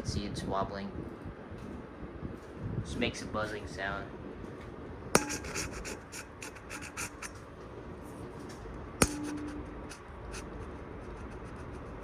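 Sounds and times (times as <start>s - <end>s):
ceiling fan running and wobbling: 0.0s - 12.0s
sharp ringing taps: 5.2s - 5.8s, 9.0s - 9.8s.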